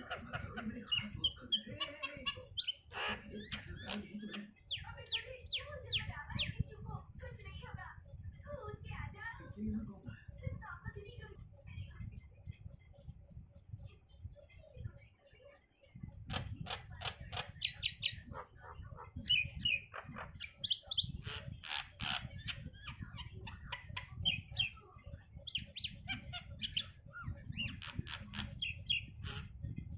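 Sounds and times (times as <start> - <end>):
myna chirps whistles and squawks: 17.1 - 29.9.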